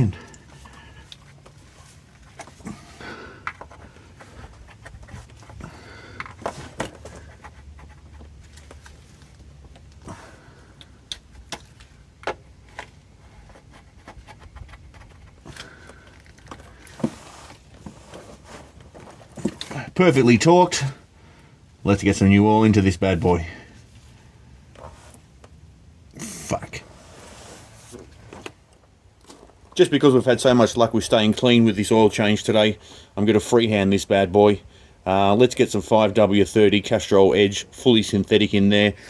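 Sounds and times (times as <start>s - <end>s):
person breathing hard: 0.0s - 1.2s, 2.6s - 4.6s, 5.5s - 6.4s, 10.0s - 11.1s, 15.4s - 17.2s.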